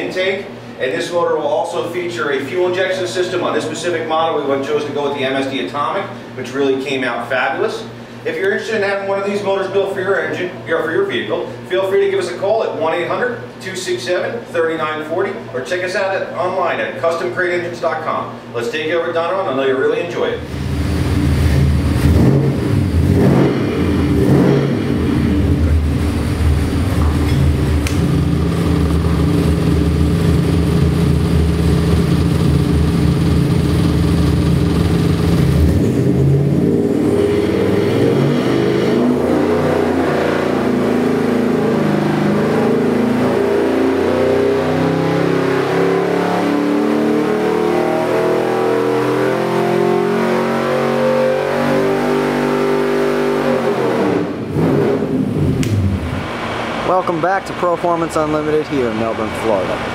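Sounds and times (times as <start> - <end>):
engine revving on a dyno: 20.2 - 59.9.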